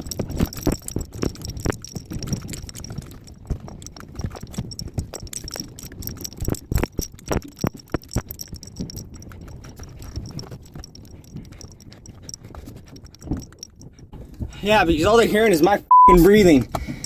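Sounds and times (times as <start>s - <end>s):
knocks and rattles: 0.0s - 15.2s
heavy breathing: 16.7s - 17.0s.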